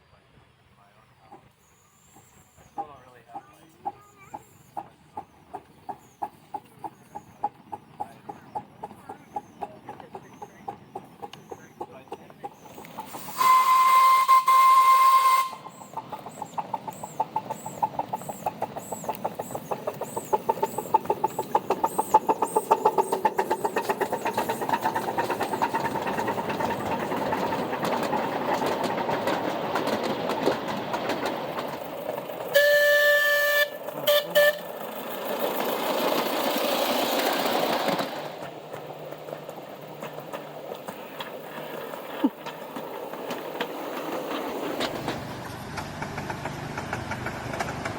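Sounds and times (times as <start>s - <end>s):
steam locomotive chuffing: 1.2s - 47.9s
steam hissing: 12.5s - 38.4s
steam locomotive whistle: 13.2s - 15.8s, 32.5s - 34.7s.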